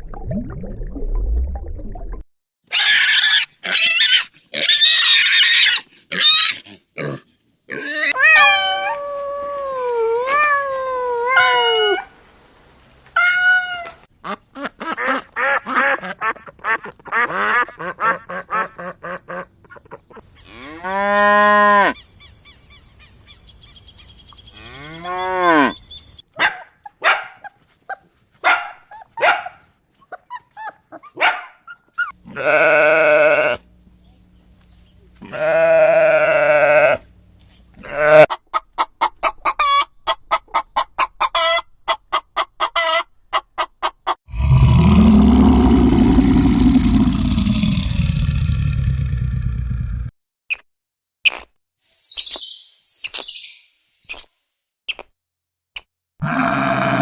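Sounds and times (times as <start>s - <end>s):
shrill animal cries: 2.7s - 6.6s, 7.7s - 9.5s, 13.2s - 14.0s, 28.9s - 33.6s, 35.2s - 37.0s.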